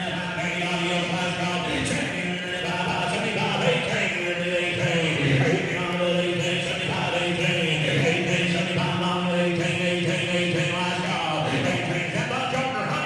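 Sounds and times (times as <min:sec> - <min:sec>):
auctioneer chanting bids: 0:00.0 - 0:13.0.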